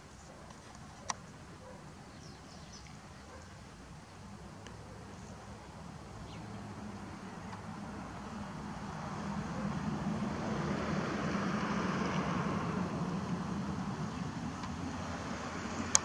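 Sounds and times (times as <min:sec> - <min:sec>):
engine drone: 0:04.4 - 0:16.0.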